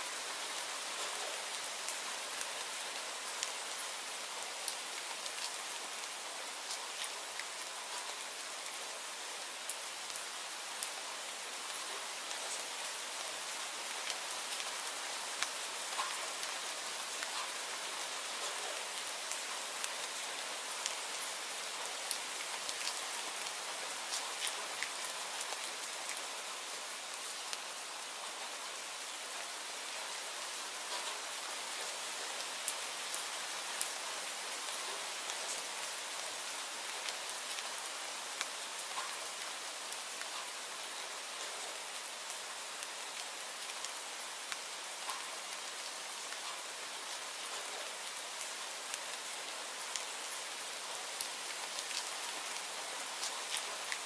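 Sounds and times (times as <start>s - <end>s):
steady rainfall: 0.0s - 54.0s
raindrops ticking on a surface: 0.1s - 54.0s
raindrop ticks: 15.4s - 16.5s, 38.4s - 39.2s, 44.5s - 45.3s.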